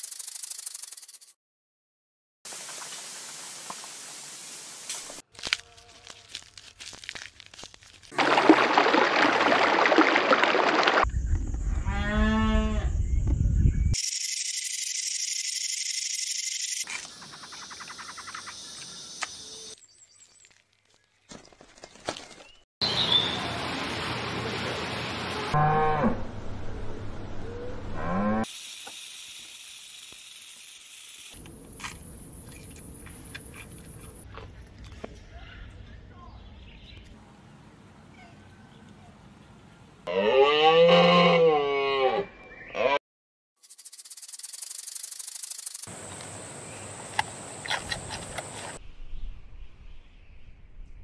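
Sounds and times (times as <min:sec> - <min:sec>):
cow mooing: 0:40.1 - 0:43.0
panda chewing bamboo: 0:47.6 - 0:48.8.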